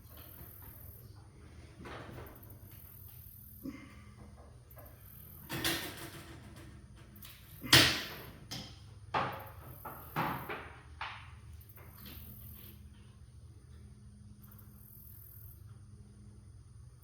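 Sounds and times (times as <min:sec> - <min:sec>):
knocks and clanks of door hardware: 0:07.6 - 0:11.3.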